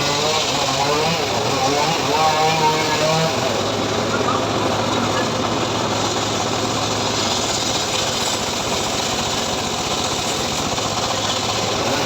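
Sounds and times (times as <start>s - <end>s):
saw cutting log: 0.0s - 12.0s
sawmill engine hum: 0.0s - 12.0s.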